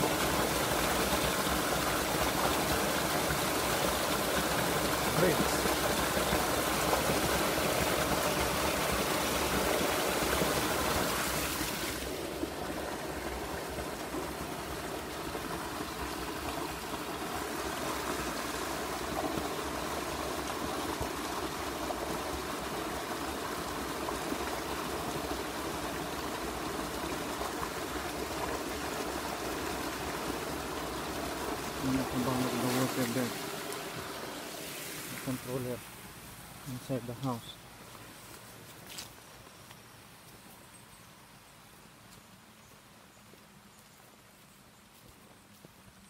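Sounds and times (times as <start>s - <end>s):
river water rushing: 0.0s - 37.8s.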